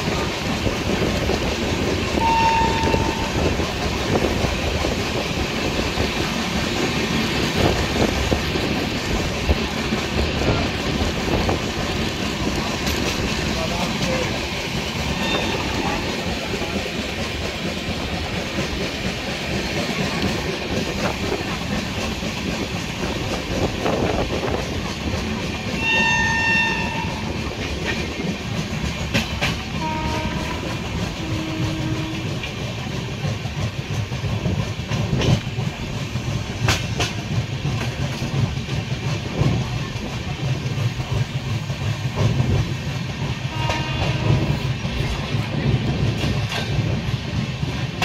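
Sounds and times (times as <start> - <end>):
train rumble: 0.0 - 48.0
wheels clattering over rail joints: 0.0 - 48.0
train horn: 2.2 - 3.6, 15.1 - 16.3, 25.8 - 27.4, 29.7 - 32.5, 43.4 - 44.7.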